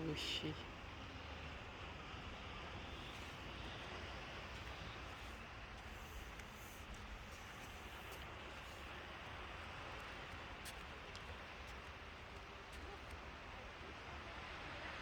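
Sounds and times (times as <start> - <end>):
seaside hiss: 2.1 - 11.8.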